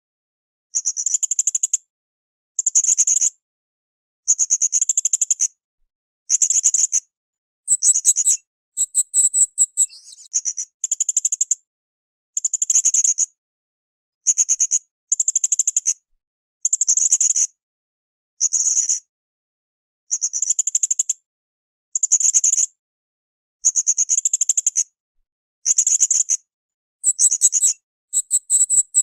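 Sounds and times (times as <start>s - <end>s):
parrot trilled chirping: 7.7s - 10.3s, 27.0s - 29.0s.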